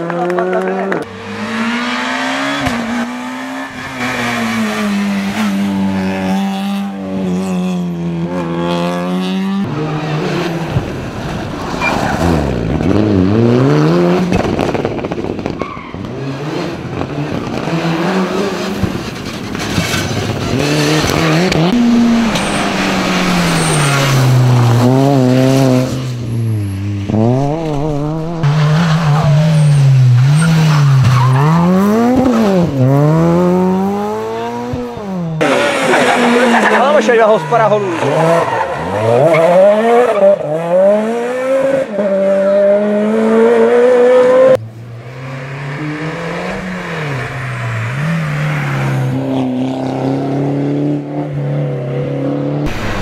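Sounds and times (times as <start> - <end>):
rally car engines revving: 0.0 - 53.0
tyres squealing and skidding: 0.6 - 6.5, 9.6 - 13.0, 15.5 - 16.5, 17.9 - 27.0, 27.6 - 32.6, 35.4 - 40.6, 45.2 - 49.2.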